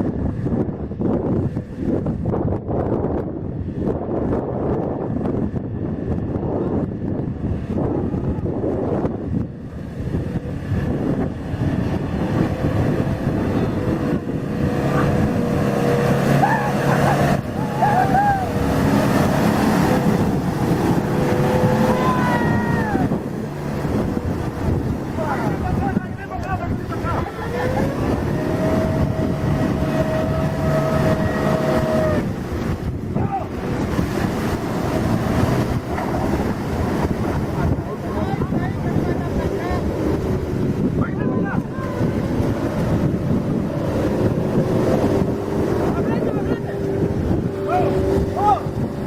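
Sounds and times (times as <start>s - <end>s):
truck engine rumbling: 0.0s - 49.0s.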